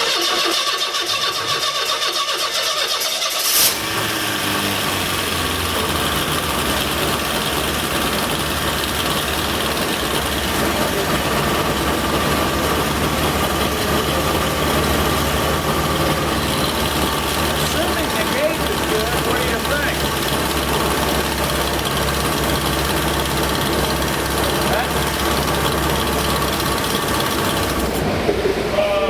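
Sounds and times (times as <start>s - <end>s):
car engine cranking and starting: 0.0s - 29.0s.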